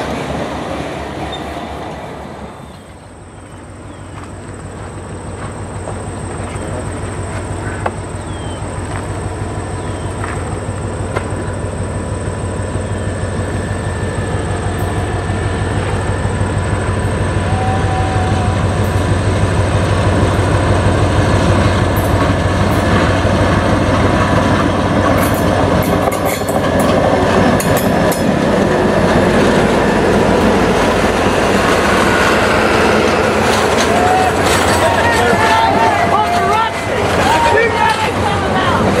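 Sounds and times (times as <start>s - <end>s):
diesel locomotive rumble: 0.0s - 39.0s
wheels clicking over rail joints: 3.4s - 12.9s, 18.8s - 39.0s.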